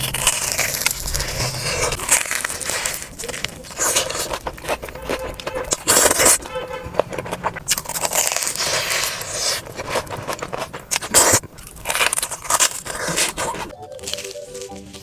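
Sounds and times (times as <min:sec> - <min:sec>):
crunchy food chewing: 0:00.0 - 0:15.0.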